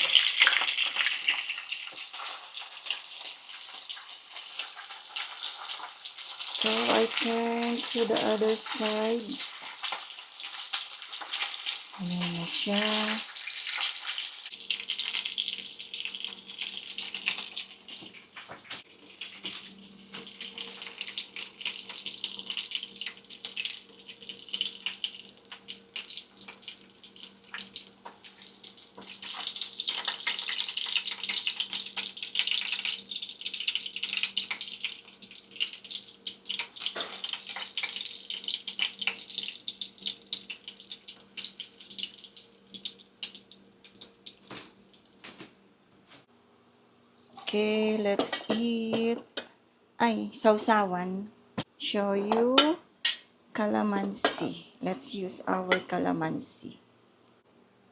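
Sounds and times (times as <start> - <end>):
food sizzling in a pan: 0.0 - 45.3.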